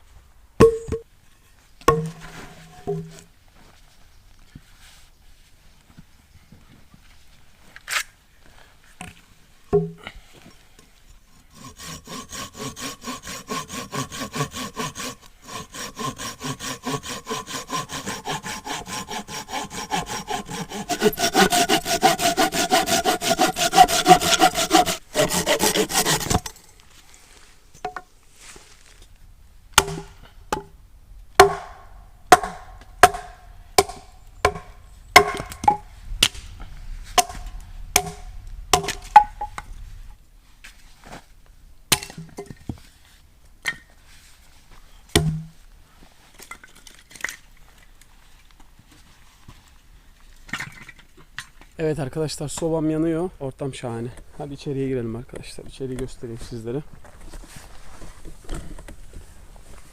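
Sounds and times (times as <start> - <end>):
hatchet chopping wood: 1.9 - 2.2, 11.8 - 26.6, 29.8 - 30.7, 31.4 - 36.4, 37.2 - 39.5, 41.9 - 42.5, 45.1 - 45.5
hand saw cutting wood: 11.3 - 26.6, 31.4 - 36.4, 37.2 - 39.3.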